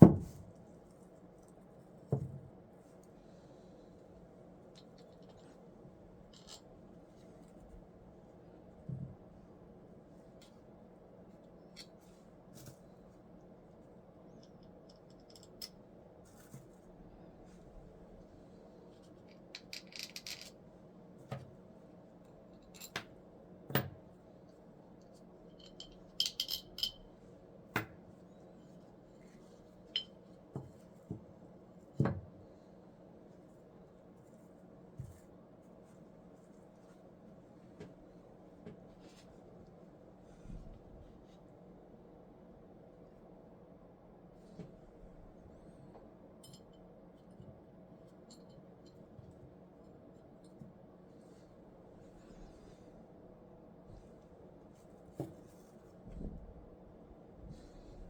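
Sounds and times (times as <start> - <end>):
faint steady hum: 0.0 - 58.0
light clicks and scratching: 4.6 - 7.9
hand tools clicking and clinking: 25.6 - 27.0.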